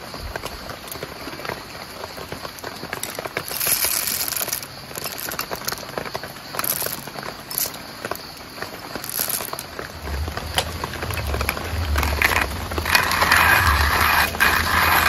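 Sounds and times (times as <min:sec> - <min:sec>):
rain ticking on a tent: 0:00.0 - 0:15.0
low rumble: 0:09.2 - 0:15.0.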